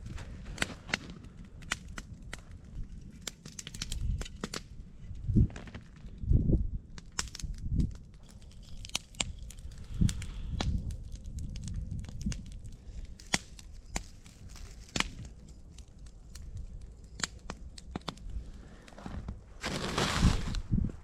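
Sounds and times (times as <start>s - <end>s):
campfire crackling and popping: 0.0s - 21.0s
dense rustling noise: 18.5s - 21.0s.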